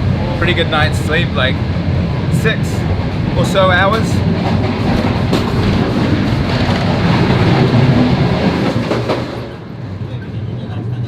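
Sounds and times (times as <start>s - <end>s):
train wheels clattering on rails: 2.8s - 9.7s.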